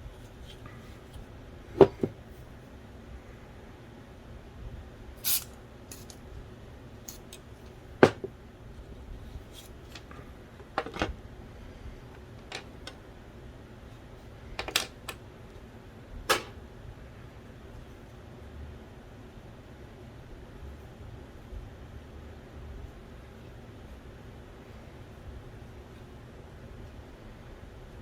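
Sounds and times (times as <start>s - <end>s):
small plastic and metal parts clicking: 5.2s - 6.2s.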